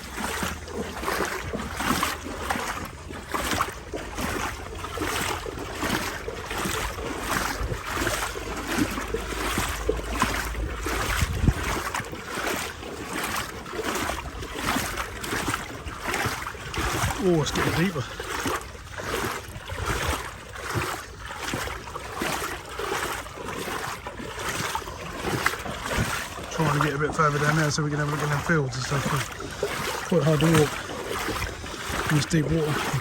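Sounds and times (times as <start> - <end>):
wading through water sloshing: 0.0 - 33.0
wind rumble on microphone: 4.8 - 12.3, 14.0 - 17.7, 18.4 - 21.6.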